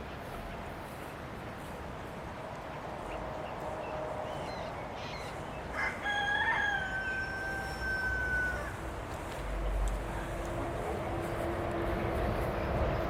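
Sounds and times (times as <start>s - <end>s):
rooster crowing: 5.7s - 8.9s.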